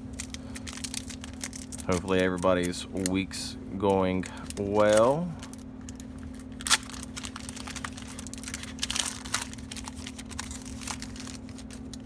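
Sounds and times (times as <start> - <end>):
foil pack crinkling: 0.0 - 12.0
steady low hum: 0.0 - 12.0.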